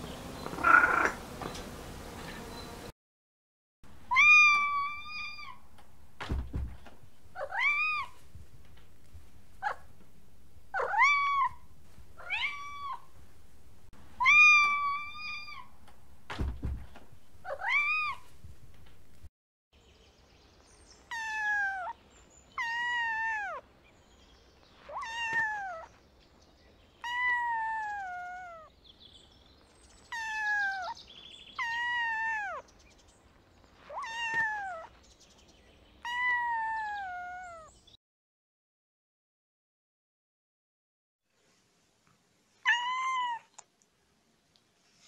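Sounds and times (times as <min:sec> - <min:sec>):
cat meowing: 0:00.5 - 0:01.2, 0:04.1 - 0:05.6, 0:07.4 - 0:08.2, 0:10.7 - 0:13.1, 0:14.2 - 0:15.7, 0:17.4 - 0:18.3, 0:21.1 - 0:22.0, 0:22.6 - 0:23.6, 0:24.8 - 0:25.9, 0:27.0 - 0:28.7, 0:30.1 - 0:31.0, 0:31.6 - 0:32.7, 0:33.8 - 0:35.0, 0:36.0 - 0:37.7, 0:42.6 - 0:43.7.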